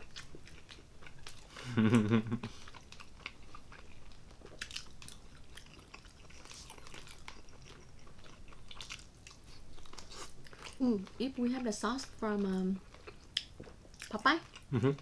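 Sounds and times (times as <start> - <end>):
chewing and wet mouth clicks: 2.6 - 10.8, 12.4 - 15.0.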